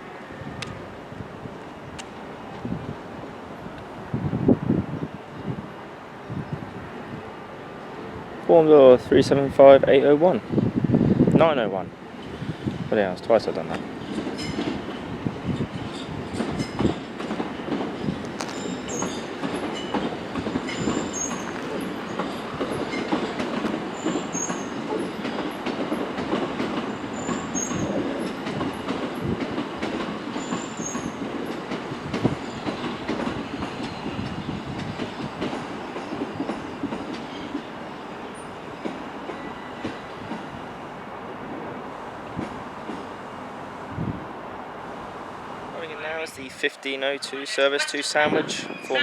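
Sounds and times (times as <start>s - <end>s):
train rumble: 0.0s - 49.0s
high wheel squeals: 20.7s - 23.1s, 23.9s - 25.2s, 27.1s - 28.0s, 30.4s - 31.2s.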